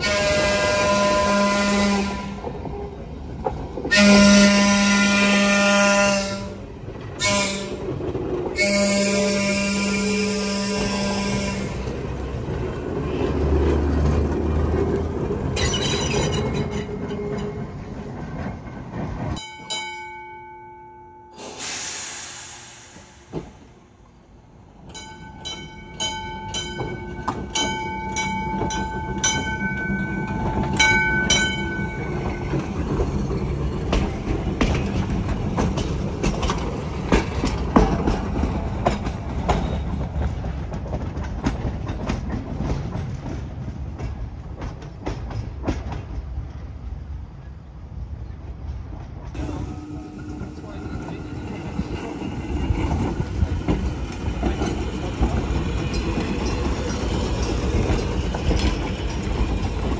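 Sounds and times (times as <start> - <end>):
multi-note train horn blasts: 0.0 - 2.5, 3.9 - 6.6, 7.2 - 7.8, 8.6 - 12.0, 49.4 - 51.0
train wheels rumbling on rail: 0.0 - 20.3, 21.3 - 59.9
wheels clacking over rail joints: 6.4 - 20.3, 24.8 - 46.7, 48.4 - 59.9.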